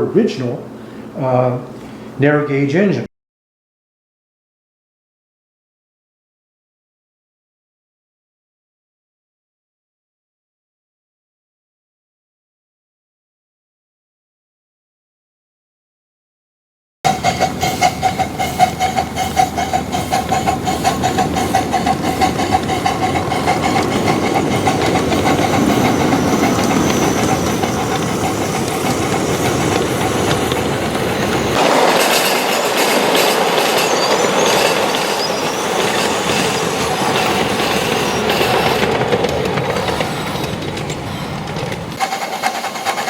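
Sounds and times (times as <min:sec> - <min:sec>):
steady train whine: 0:17.1 - 0:43.0
train wheels clacking on rails: 0:17.1 - 0:43.0.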